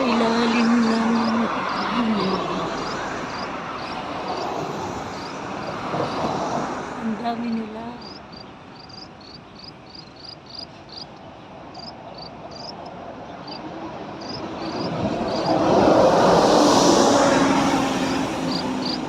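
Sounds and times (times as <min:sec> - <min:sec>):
broad rush of noise: 0:00.0 - 0:19.0
small birds chirping: 0:07.2 - 0:15.5.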